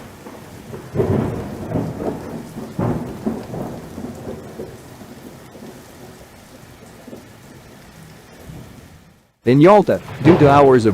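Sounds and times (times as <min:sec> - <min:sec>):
heavy rain: 0:00.0 - 0:10.9
thunder rumbling: 0:00.0 - 0:10.9.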